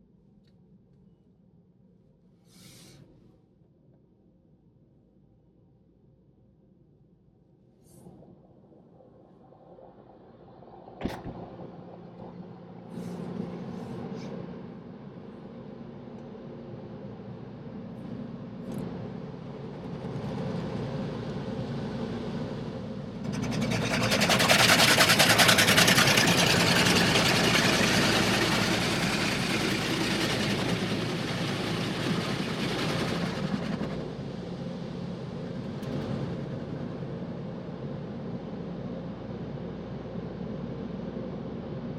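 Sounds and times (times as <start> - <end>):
low hum: 7.3 - 41.9
water jets spraying on car: 23.4 - 33.8.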